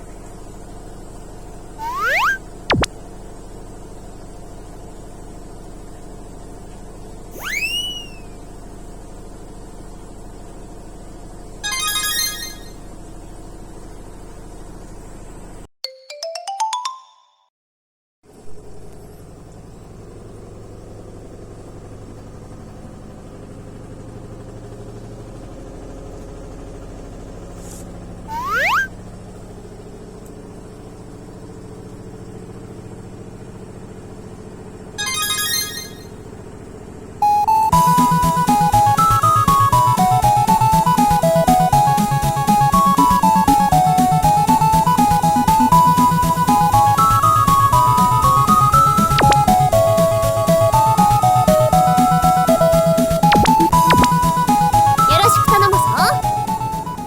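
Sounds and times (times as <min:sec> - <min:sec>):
washing machine humming: 0:01.2 - 0:02.9
rising beeps: 0:01.8 - 0:02.9, 0:07.3 - 0:08.3, 0:11.6 - 0:12.8, 0:28.3 - 0:28.9, 0:35.0 - 0:36.2, 0:49.2 - 0:49.5, 0:53.2 - 0:54.2
short electronic tones: 0:01.8 - 0:02.9, 0:07.3 - 0:08.3, 0:11.6 - 0:12.8, 0:28.3 - 0:28.9, 0:35.0 - 0:36.2, 0:49.2 - 0:49.5, 0:53.2 - 0:54.2
sliding whistle-like glide: 0:01.8 - 0:02.9, 0:07.3 - 0:08.4, 0:28.3 - 0:28.9.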